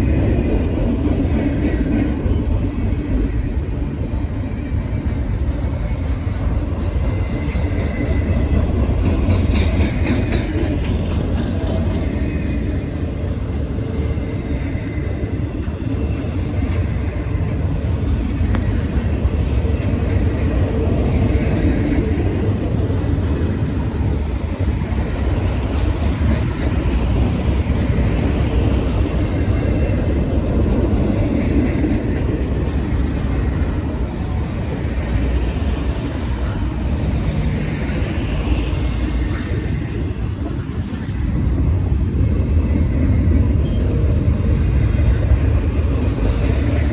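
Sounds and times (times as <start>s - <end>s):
train wheels rumbling on rail: 0.0s - 46.9s.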